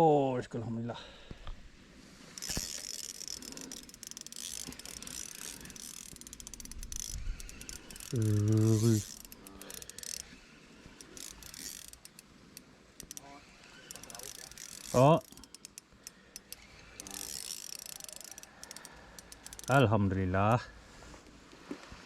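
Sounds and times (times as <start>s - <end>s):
fishing reel clicking: 2.3s - 19.9s.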